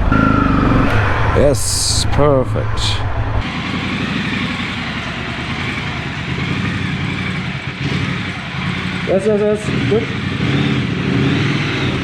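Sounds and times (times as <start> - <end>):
motorcycle engine idling: 2.2 - 12.0.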